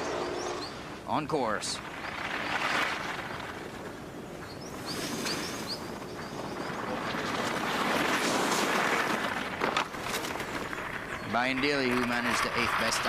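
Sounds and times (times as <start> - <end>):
skis scraping over hard snow: 1.8 - 4.0, 6.6 - 13.0
ski edges squeaking: 6.8 - 13.0.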